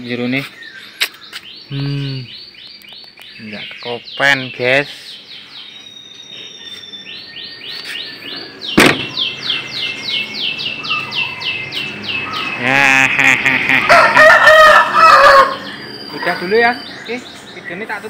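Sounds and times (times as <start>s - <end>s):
songbird high falling chirps: 0.0s - 18.0s
sharp bang: 8.8s - 9.2s
rooster crowing: 13.6s - 15.8s.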